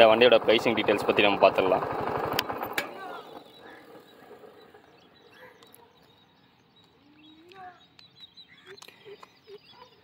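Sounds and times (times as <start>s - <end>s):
bird chirps: 2.4s - 10.0s.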